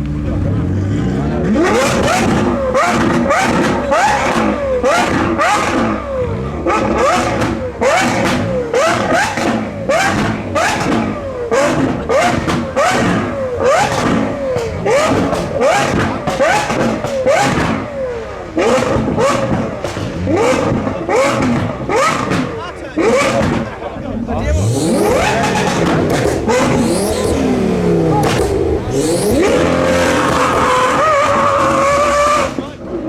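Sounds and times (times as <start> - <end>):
car engine revving: 0.0 - 33.0
exhaust crackles and pops: 1.2 - 17.9, 18.5 - 33.0.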